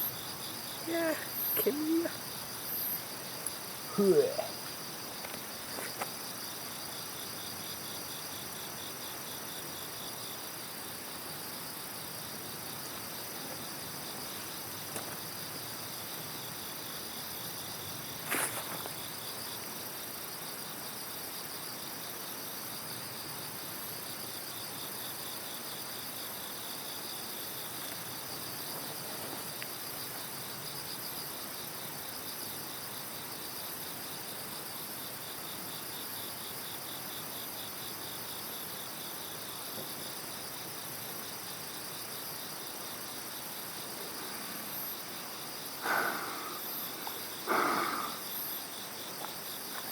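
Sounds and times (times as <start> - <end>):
insects chirping: 0.0 - 49.9
low hiss: 41.6 - 49.7.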